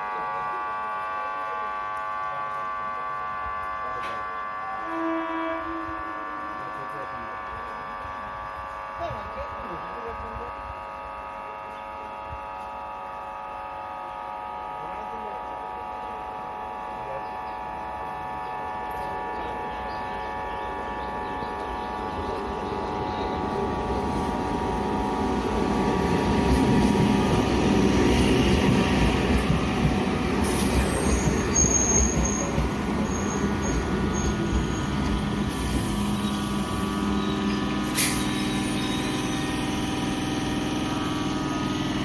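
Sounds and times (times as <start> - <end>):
electric train whine: 0.0 - 42.0
wheels rumbling on rails: 17.9 - 42.0
brake squeals: 30.4 - 39.8.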